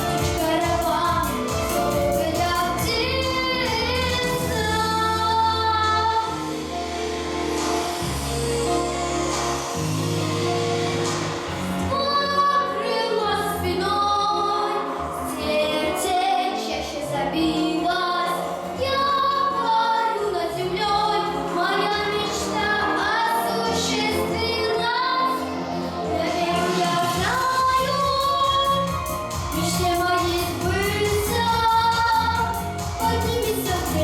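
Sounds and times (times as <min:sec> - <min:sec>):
woman singing: 0:00.0 - 0:06.5, 0:11.9 - 0:34.0
instrumental backing music: 0:00.0 - 0:34.0.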